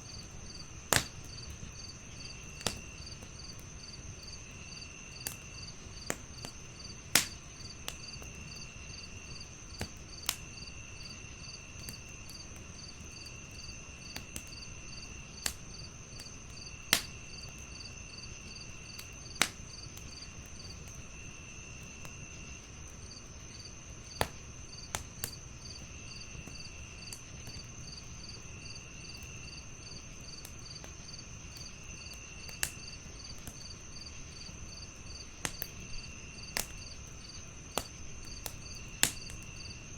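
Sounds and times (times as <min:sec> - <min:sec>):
crickets chirping: 0:00.0 - 0:39.9
wood fire crackling: 0:00.0 - 0:39.9.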